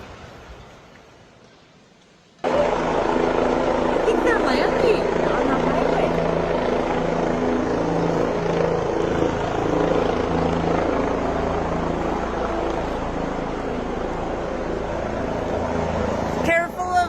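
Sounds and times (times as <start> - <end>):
helicopter engine and rotor hum: 2.4 - 17.0.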